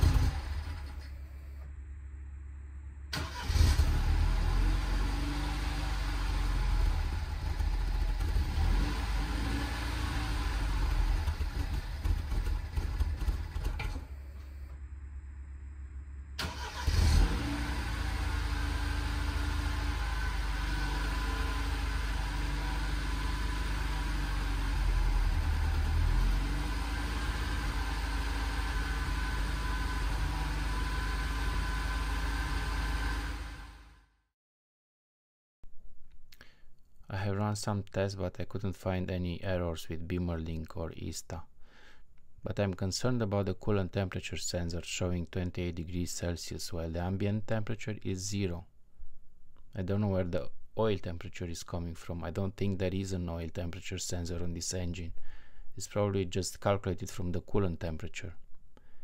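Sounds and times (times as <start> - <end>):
car engine starting and running: 0.0 - 34.1.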